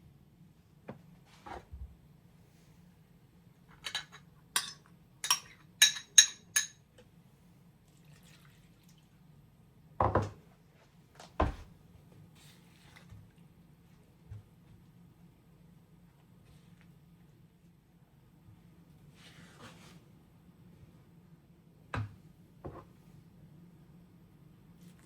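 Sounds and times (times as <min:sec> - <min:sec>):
dishes clinking: 0:03.8 - 0:06.8.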